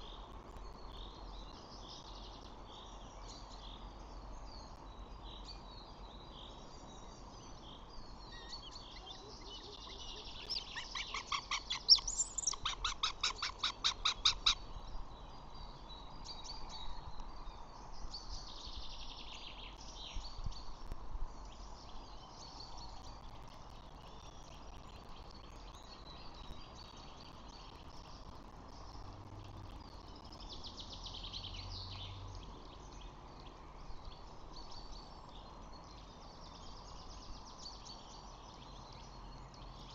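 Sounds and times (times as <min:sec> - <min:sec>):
steady background hiss: 0:00.0 - 0:39.9
birds chirping and calling: 0:08.2 - 0:14.9.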